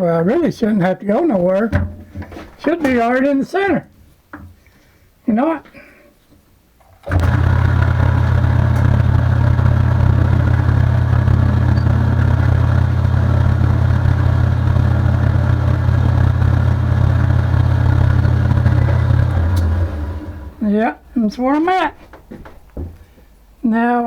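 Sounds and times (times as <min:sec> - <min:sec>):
workshop machine humming: 0:06.8 - 0:20.8.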